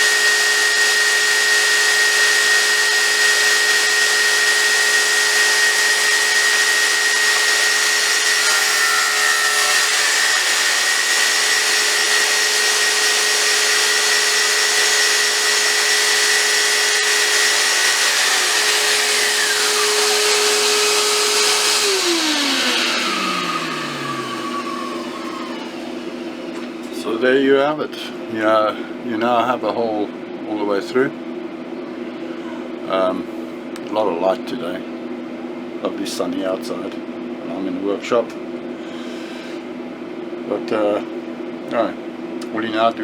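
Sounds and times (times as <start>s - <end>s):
saw blade winding down: 0.0s - 27.2s
circular saw cutting: 0.0s - 27.3s.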